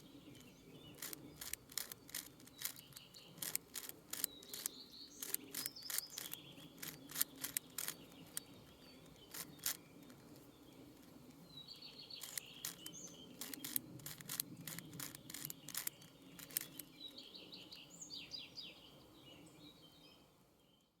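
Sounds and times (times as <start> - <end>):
bird trill: 0.0 - 10.2
birds chirping: 0.0 - 20.2
puzzle cube layers clicking: 1.0 - 8.5, 9.3 - 10.4, 12.2 - 16.9.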